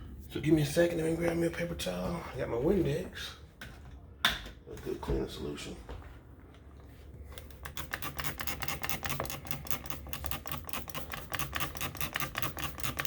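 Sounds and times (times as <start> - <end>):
spray bottle spritzing: 8.0 - 13.0.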